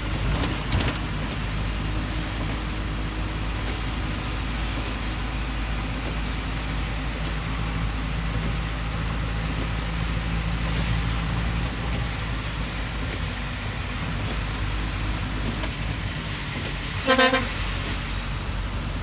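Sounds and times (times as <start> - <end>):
engine humming: 0.0 - 19.0
vehicle engines at low speed: 0.0 - 19.0.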